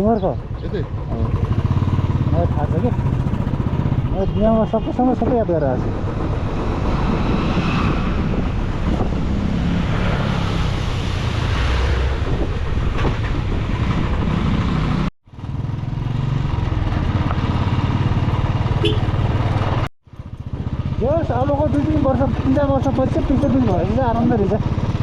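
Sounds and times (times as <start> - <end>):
road and wind noise: 0.0 - 25.0
vehicle engine running: 0.2 - 4.6.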